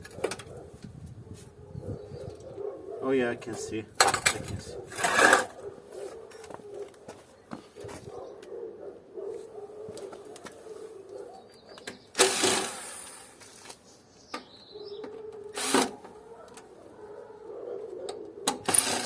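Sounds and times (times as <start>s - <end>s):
metal and plastic parts rattling: 4.0s - 5.5s, 18.5s - 19.0s.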